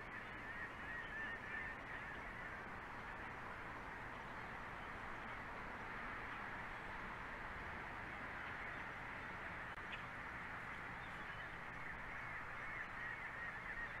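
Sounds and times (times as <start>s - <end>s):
wavering bird calls: 0.0s - 2.6s, 11.0s - 14.0s
outdoor background hiss: 0.0s - 14.0s.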